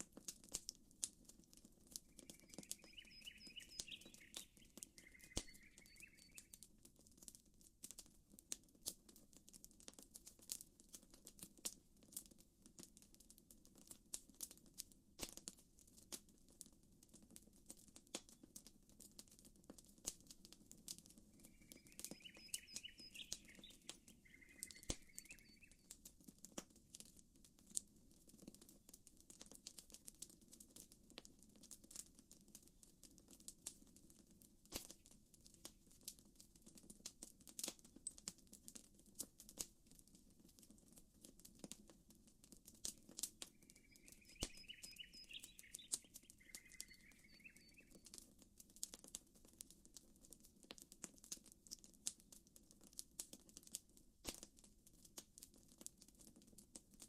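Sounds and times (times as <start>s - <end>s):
campfire crackling: 0.0s - 57.0s
bird chirping: 2.1s - 6.6s, 21.4s - 25.9s, 43.5s - 48.1s.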